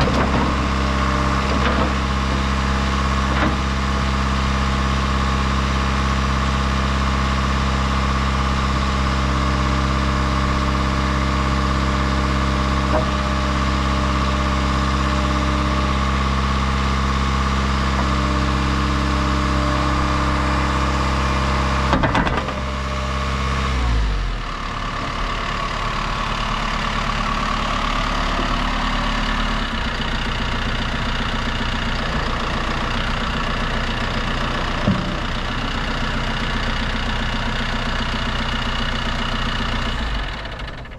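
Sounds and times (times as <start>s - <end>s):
clunk: 0.0s - 0.7s, 1.4s - 2.1s, 21.9s - 22.7s, 34.7s - 35.5s
diesel engine idling: 0.0s - 40.9s.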